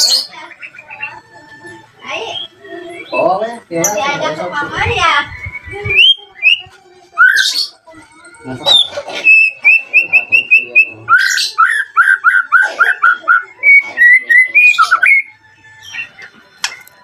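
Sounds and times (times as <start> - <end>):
bird singing whistled notes: 5.1 - 7.7, 8.7 - 16.9.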